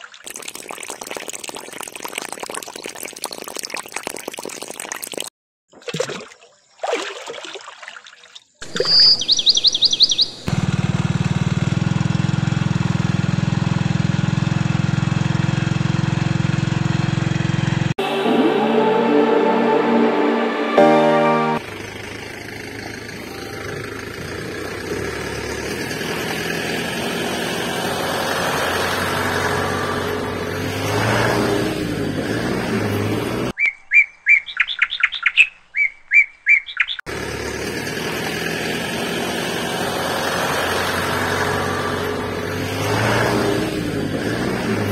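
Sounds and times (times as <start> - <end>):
bird chirps: 8.7 - 10.5, 33.6 - 37.1
engine running: 10.5 - 33.5, 37.1 - 44.9.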